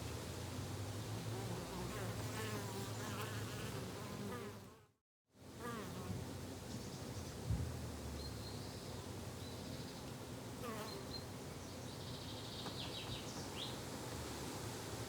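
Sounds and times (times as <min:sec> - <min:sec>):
small birds chirping: 0:10.8 - 0:13.8.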